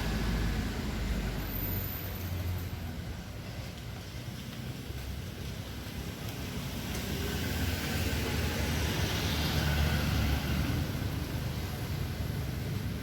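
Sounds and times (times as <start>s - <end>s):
vehicle rumble: 0.0s - 13.0s.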